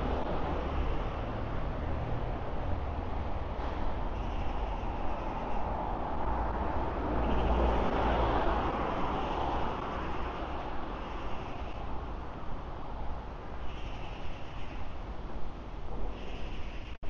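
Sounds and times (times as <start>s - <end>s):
vehicle passing close by: 0.0s - 11.9s
low rumble of traffic: 0.0s - 17.0s.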